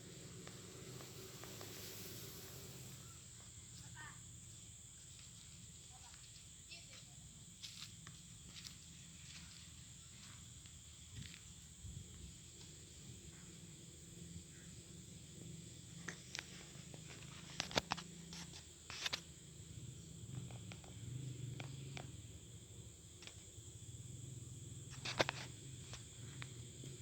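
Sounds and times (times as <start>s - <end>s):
bees buzzing: 0.0s - 3.3s
high insect trill: 0.0s - 27.0s.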